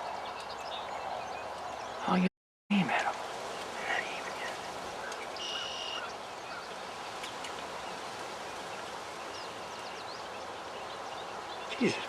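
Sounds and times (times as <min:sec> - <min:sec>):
background hiss: 0:02.7 - 0:12.0
faint bird chirps: 0:02.9 - 0:12.0.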